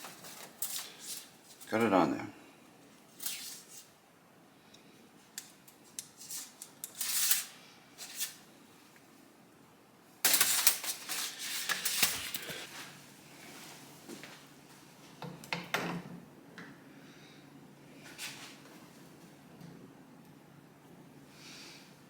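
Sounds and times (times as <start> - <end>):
clicking and rattling of small parts: 10.3 - 12.5.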